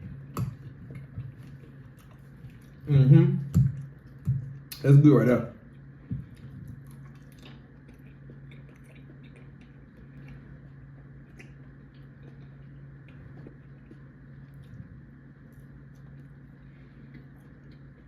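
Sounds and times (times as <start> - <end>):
person chewing food: 0.0 - 4.8, 5.7 - 18.0
steady low hum: 0.0 - 18.0.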